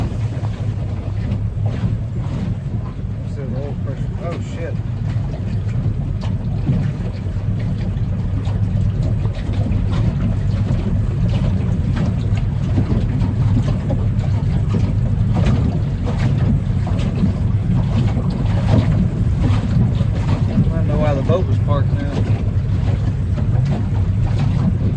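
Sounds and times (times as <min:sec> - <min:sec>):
engine idling: 0:09.8 - 0:24.9.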